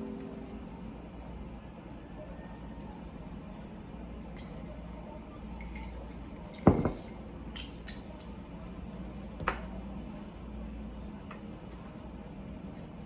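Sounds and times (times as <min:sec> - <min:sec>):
low steady hum: 0:00.0 - 0:02.2
glass or dishes clinking: 0:05.6 - 0:07.7.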